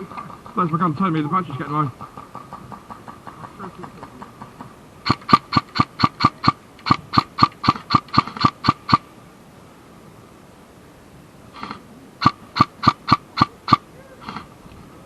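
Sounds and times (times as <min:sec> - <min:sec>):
airsoft gun motor beeping: 0:05.0 - 0:09.0.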